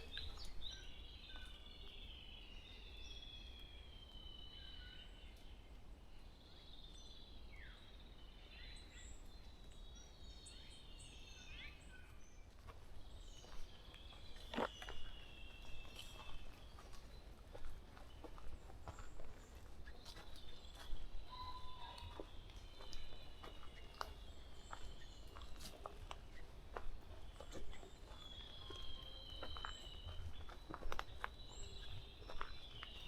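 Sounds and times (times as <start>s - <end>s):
songbirds singing and chirping: 0.0s - 33.0s
sharp footsteps: 12.6s - 33.0s.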